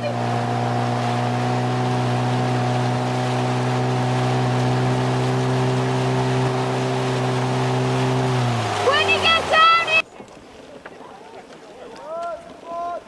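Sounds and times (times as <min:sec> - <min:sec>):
motorboat engine running: 0:00.0 - 0:10.0.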